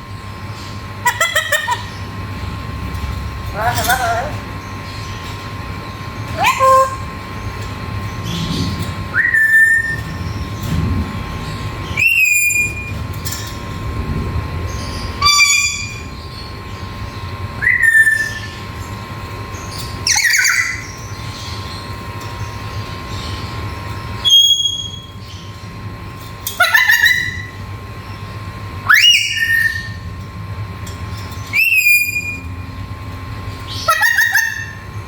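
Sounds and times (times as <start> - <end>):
parrot whistled calls: 6.4 - 7.1, 9.1 - 10.1, 11.9 - 13.0, 15.2 - 16.1, 17.6 - 18.6, 20.0 - 20.9, 24.2 - 25.2, 28.8 - 30.0, 31.5 - 32.5, 33.8 - 34.8.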